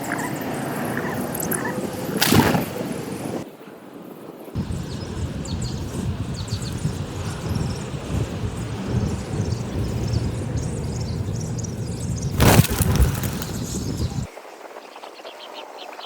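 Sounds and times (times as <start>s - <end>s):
wind rumbling on microphone: 4.6s - 14.4s.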